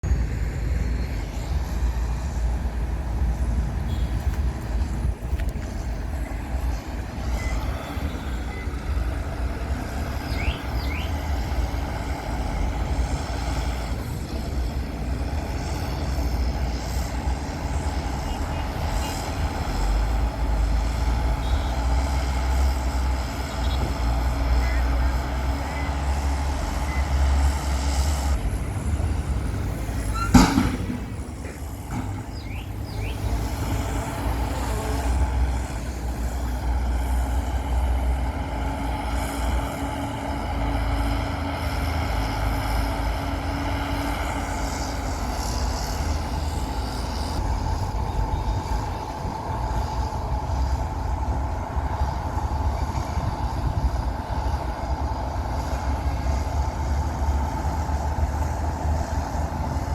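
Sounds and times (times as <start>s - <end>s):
diesel machinery rumbling: 0.0s - 59.9s
sharp bang: 30.1s - 32.4s.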